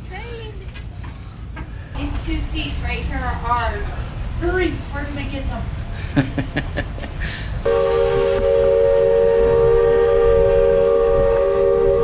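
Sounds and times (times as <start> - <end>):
steam locomotive whistle: 7.7 - 12.0.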